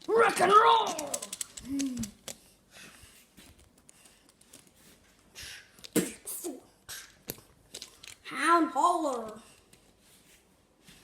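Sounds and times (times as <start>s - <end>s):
toy trucks clicking on plastic track: 0.0s - 2.4s, 6.9s - 8.3s.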